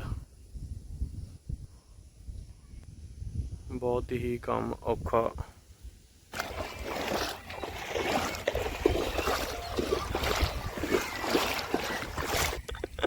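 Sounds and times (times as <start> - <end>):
floodwater sloshing and splashing: 6.3 - 13.0.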